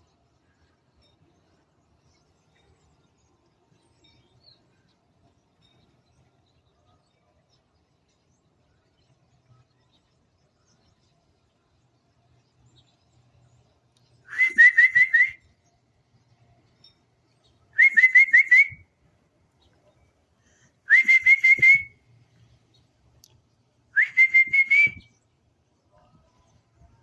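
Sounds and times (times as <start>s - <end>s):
person whistling rising notes: 14.3s - 15.4s, 17.8s - 18.8s, 20.9s - 21.9s, 24.0s - 25.0s.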